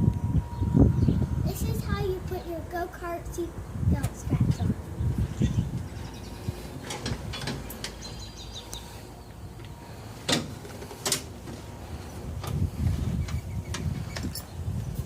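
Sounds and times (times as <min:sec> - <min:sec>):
birds chirping: 0:04.3 - 0:10.2, 0:11.5 - 0:15.0
harness buckle clicks and clunks: 0:13.3 - 0:14.5.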